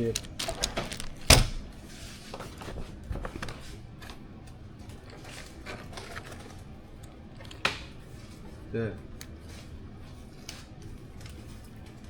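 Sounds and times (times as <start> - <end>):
small parts clicking and rustling: 0.0 - 1.7.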